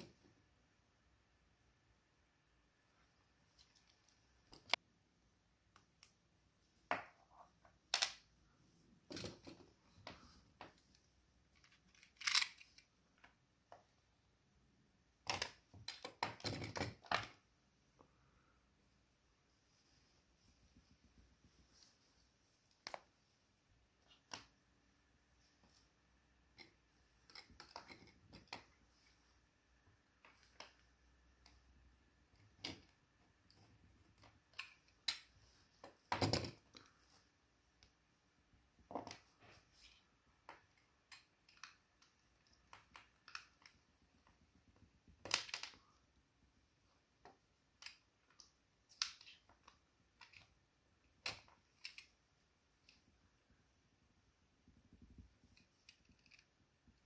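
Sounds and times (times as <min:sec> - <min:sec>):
hands handling small parts: 0:03.4 - 0:04.8, 0:05.7 - 0:13.9, 0:15.2 - 0:18.1, 0:23.9 - 0:38.0, 0:38.8 - 0:46.1, 0:47.0 - 0:53.1, 0:54.8 - 0:57.0.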